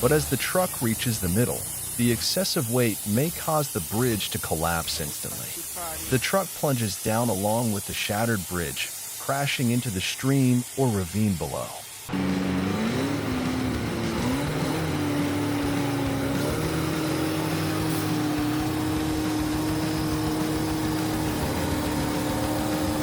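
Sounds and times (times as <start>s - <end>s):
truck engine running under load: 0.0s - 4.1s, 12.1s - 23.0s.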